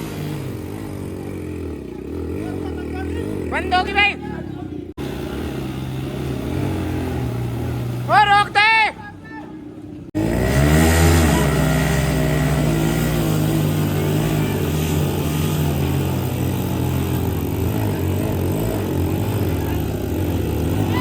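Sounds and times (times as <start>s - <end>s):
motorcycle engines at high revs: 0.0s - 21.0s.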